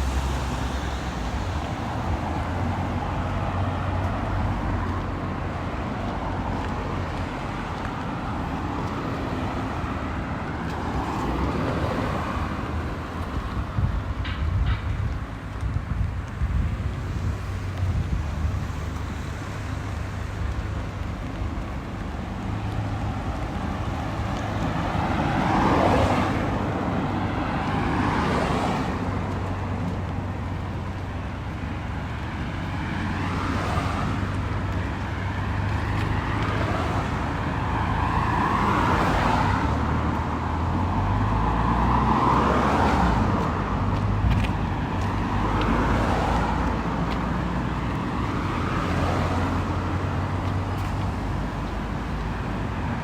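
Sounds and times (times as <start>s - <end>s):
cars passing on wet road: 0.0s - 53.0s
traffic rumble: 0.0s - 53.0s.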